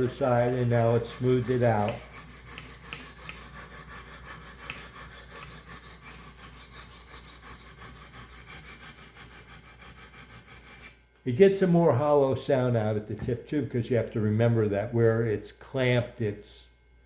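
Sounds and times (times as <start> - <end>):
sharpening stones rasping on knife: 0.0 - 10.9.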